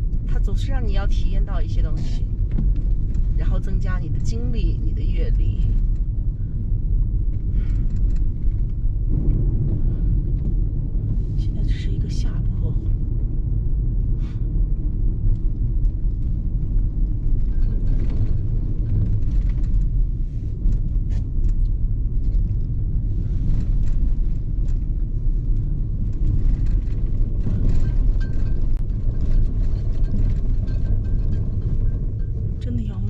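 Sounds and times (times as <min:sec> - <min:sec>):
car engine and tyres rumbling: 0:00.0 - 0:33.0.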